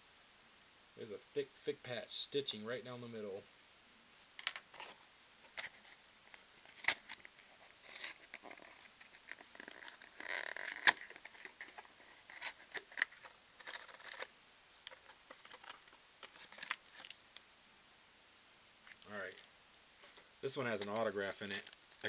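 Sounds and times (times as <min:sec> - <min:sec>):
wrapper rustling: 0:06.7 - 0:17.2, 0:18.9 - 0:22.0.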